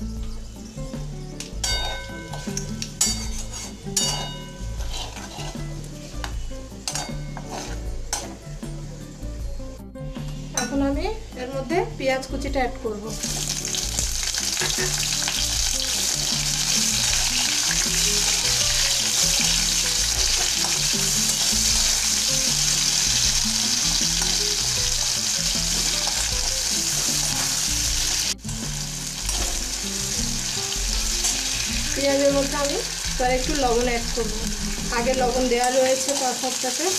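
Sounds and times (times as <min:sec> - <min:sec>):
onions sizzling in oil: 0:00.0 - 0:10.9, 0:13.0 - 0:36.9
soft background music: 0:00.0 - 0:36.9
spatula stirring in pan: 0:03.0 - 0:06.2, 0:06.9 - 0:08.3.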